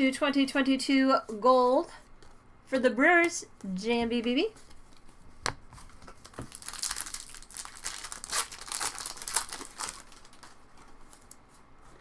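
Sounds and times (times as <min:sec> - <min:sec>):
plastic wrapper tearing and crinkling: 0:06.0 - 0:11.4.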